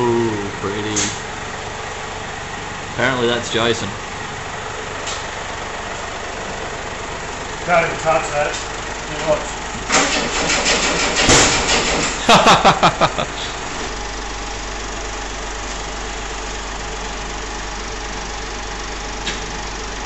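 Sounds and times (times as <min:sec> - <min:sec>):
starter motor cranking: 0:09.9 - 0:12.2.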